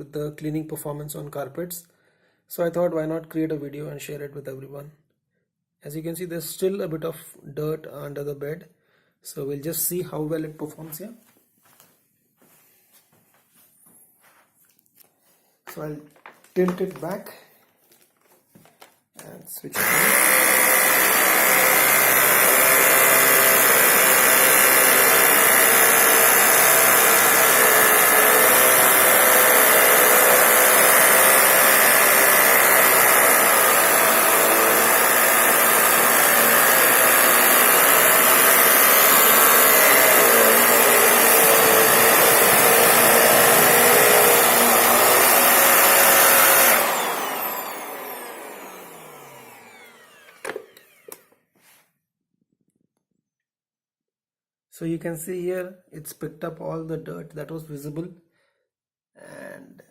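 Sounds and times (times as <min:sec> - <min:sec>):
vacuum cleaner running: 0:19.8 - 0:51.4
vacuum motor spinning down: 0:19.8 - 0:51.4.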